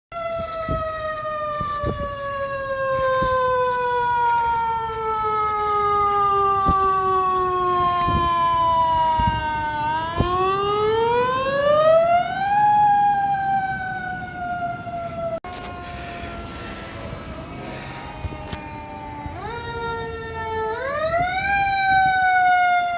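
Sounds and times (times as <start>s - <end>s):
faint siren wail: 0.1s - 22.9s
fire engine siren wailing: 0.1s - 22.9s.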